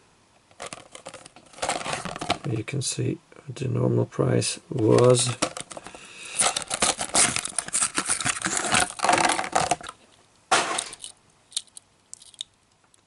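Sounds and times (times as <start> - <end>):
plastic crunch: 0.5 - 2.6, 4.8 - 12.6
plastic packaging crackling: 0.5 - 2.6, 4.8 - 12.5.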